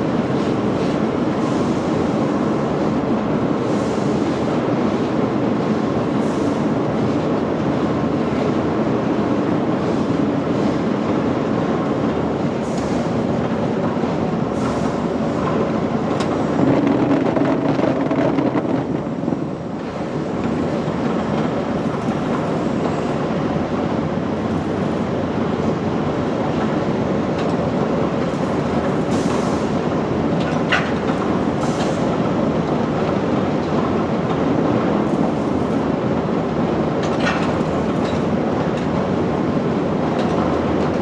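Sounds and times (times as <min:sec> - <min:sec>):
factory machinery clattering: 0:09.2 - 0:25.9.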